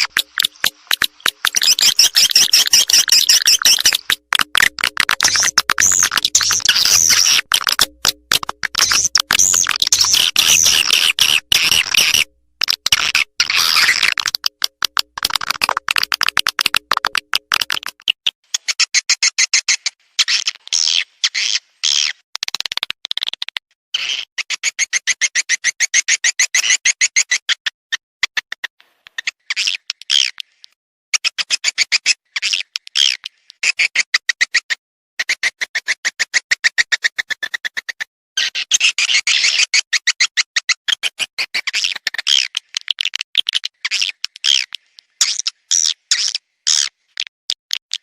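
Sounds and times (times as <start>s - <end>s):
swiftlet twittering chirps: 0.0s - 12.3s
rapid clicking: 0.0s - 13.0s, 13.8s - 18.0s.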